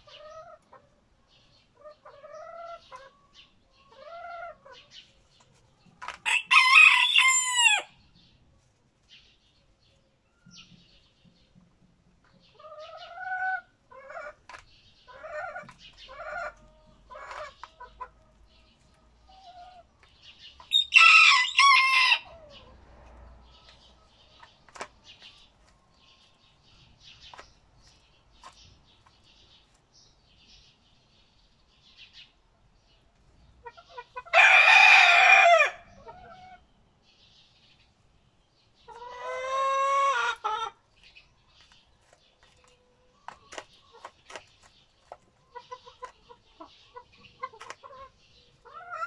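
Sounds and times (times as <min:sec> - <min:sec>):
chickens clucking: 0:00.0 - 0:49.0
rooster crowing: 0:06.3 - 0:07.9, 0:20.7 - 0:22.4, 0:34.3 - 0:35.9.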